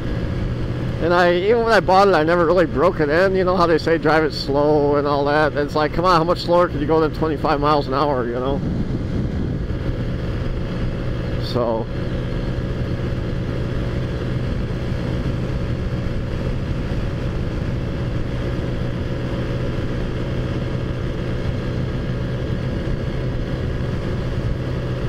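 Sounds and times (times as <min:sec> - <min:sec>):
scooter engine droning: 0:00.0 - 0:25.0
wind and road noise rumble: 0:00.0 - 0:25.0.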